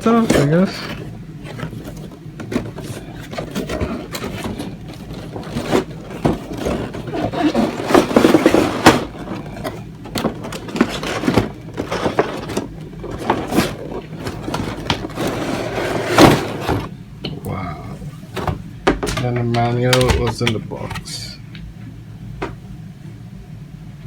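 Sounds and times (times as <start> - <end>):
box packaging scraping and clicking: 0.0 - 16.9.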